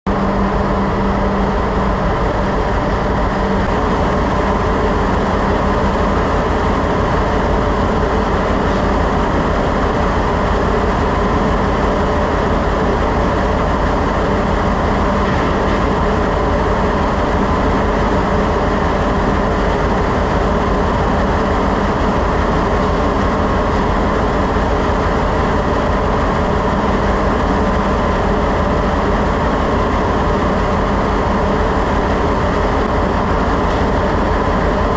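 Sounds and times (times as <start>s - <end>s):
engine room machinery drone: 0.0s - 34.9s
low hum: 0.1s - 34.9s.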